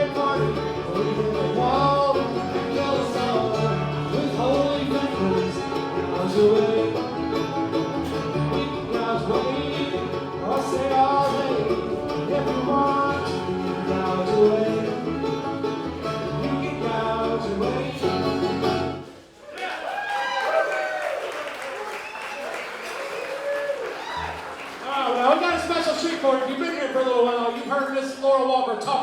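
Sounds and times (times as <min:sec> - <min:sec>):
bluegrass band playing: 0:00.0 - 0:19.5, 0:24.0 - 0:29.0.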